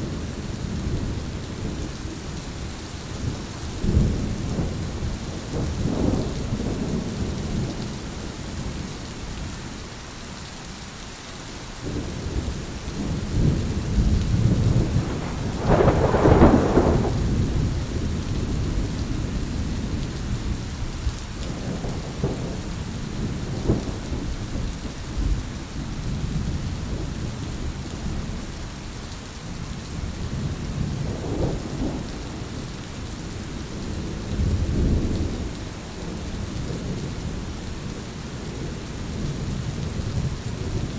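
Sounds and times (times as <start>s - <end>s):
steady rain: 0.0s - 40.9s
thunder rolling: 13.0s - 19.3s.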